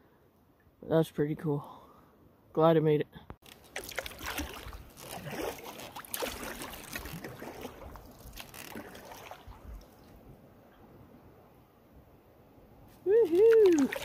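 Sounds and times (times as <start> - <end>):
paddle strokes splashing: 3.4 - 10.2, 13.0 - 14.0
river current swirling: 3.4 - 10.2, 13.0 - 14.0
water dripping: 13.3 - 14.0.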